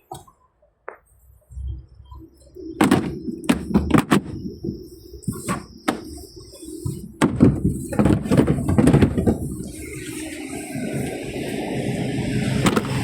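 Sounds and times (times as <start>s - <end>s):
car doors knocking and clicking: 2.8s - 6.2s, 7.1s - 9.7s.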